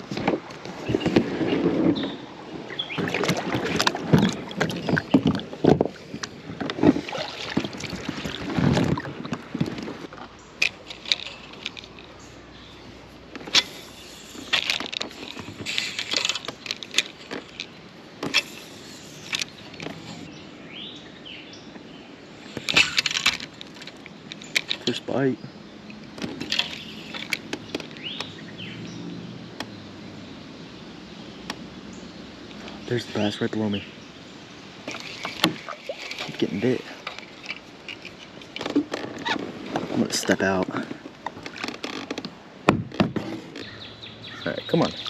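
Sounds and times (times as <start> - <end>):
kayak knocks and bumps: 0.0 - 11.3, 26.1 - 28.4, 34.8 - 43.8
paddle splashing water: 0.0 - 20.3, 25.8 - 29.1, 34.7 - 43.8.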